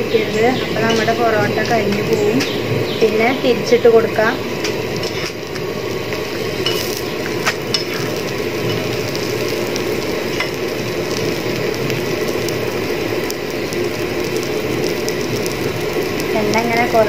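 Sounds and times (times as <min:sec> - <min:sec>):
flatbread sizzling in oil: 0:00.0 - 0:17.0.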